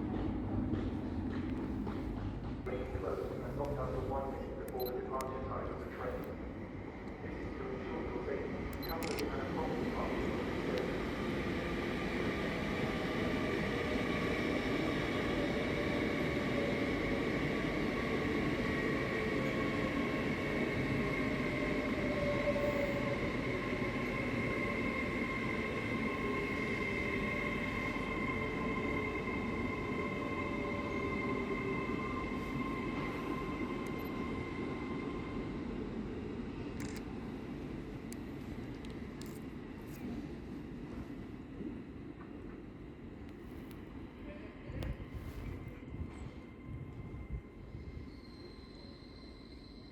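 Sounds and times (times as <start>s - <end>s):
train wheels rumbling: 0.0s - 4.5s
train high whine: 2.7s - 49.9s.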